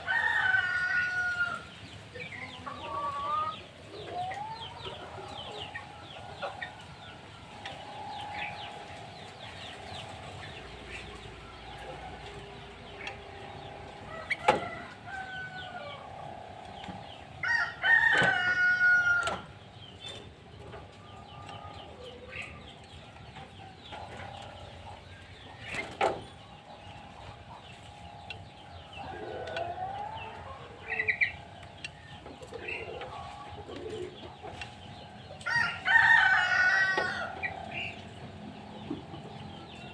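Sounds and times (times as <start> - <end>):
rooster crowing: 0.0 - 1.6, 17.4 - 19.5, 35.4 - 37.5
hens clucking: 0.0 - 39.9
small birds chirping: 0.0 - 39.9.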